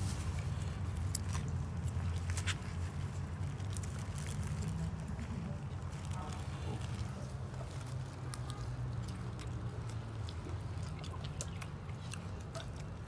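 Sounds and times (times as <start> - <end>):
chewing mouth clicks: 6.2 - 13.0.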